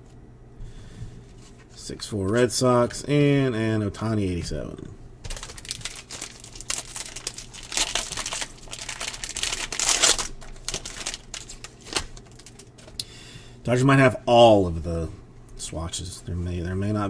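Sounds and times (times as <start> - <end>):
plastic wrapper tearing and crinkling: 5.3 - 13.0.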